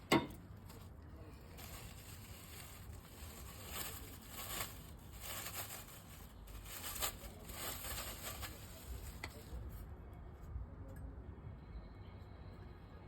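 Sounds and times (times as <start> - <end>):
rustling and scraping handling noise: 0.0 - 9.9.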